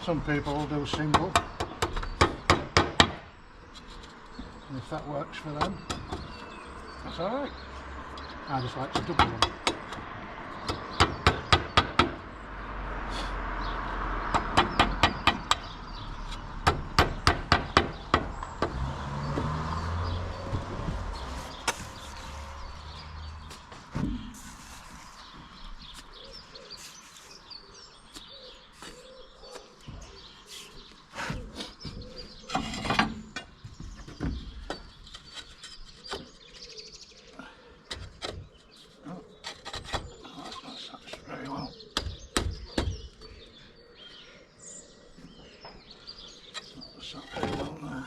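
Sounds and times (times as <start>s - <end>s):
hammer nailing roof tiles: 0.8s - 3.3s, 8.9s - 12.2s, 14.3s - 19.5s, 31.2s - 36.6s, 37.9s - 41.2s, 41.9s - 43.1s.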